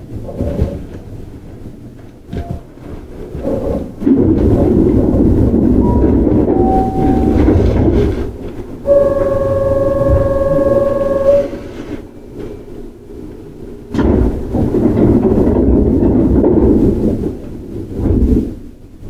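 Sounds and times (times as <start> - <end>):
electric train rumble: 0.0 - 19.0
whining tones: 5.8 - 12.0.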